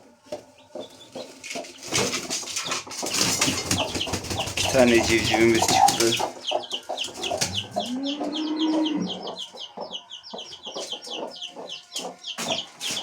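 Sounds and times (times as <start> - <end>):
chick peeping: 0.0 - 13.0.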